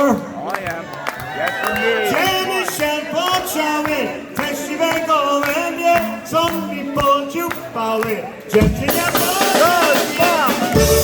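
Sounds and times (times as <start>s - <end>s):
polka band playing: 6.0s - 11.0s.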